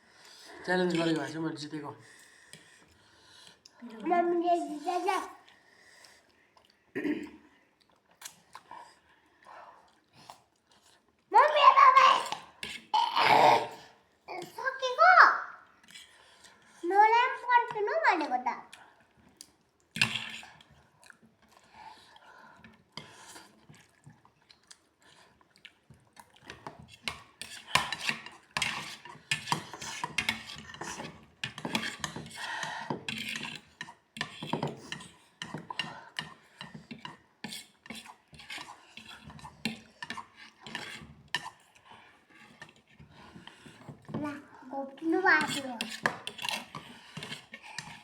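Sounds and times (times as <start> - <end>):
cutlery clinking against dishes: 26.6 - 41.6, 45.4 - 48.0.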